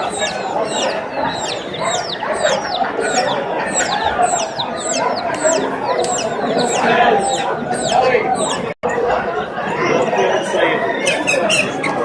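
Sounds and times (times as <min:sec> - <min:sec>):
high falling bird chirps: 0:00.0 - 0:08.7
chickens clucking: 0:00.0 - 0:08.8, 0:09.8 - 0:12.0.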